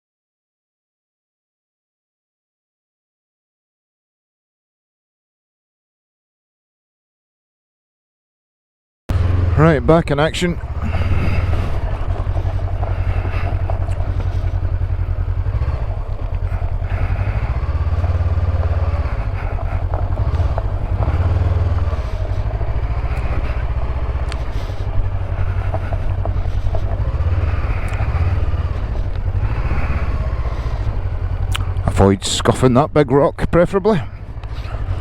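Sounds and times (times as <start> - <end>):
motorcycle engine revving: 9.1 - 35.0.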